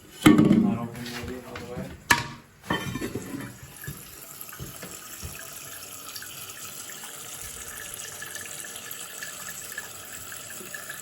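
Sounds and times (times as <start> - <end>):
water hissing through plumbing: 3.1 - 11.0.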